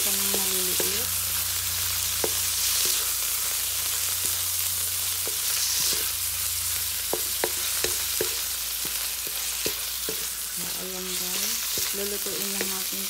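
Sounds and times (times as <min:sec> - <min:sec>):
food sizzling in hot oil: 0:00.0 - 0:13.0
spatula knocking and scraping pan: 0:07.0 - 0:13.0.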